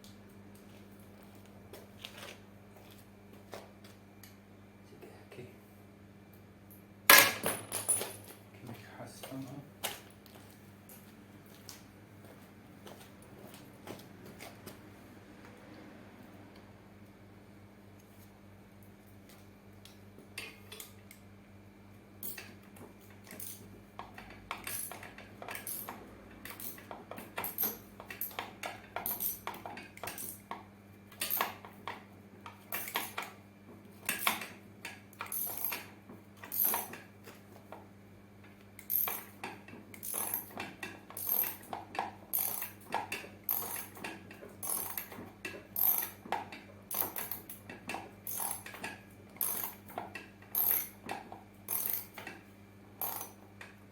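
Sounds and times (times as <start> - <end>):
ratchet tool clicking: 38.8 - 39.3, 41.2 - 41.6, 42.3 - 42.8, 43.5 - 44.0, 44.6 - 45.2, 45.8 - 46.2, 46.9 - 47.4, 48.2 - 48.8, 49.4 - 49.8, 50.5 - 51.0, 51.7 - 52.3, 53.0 - 53.4.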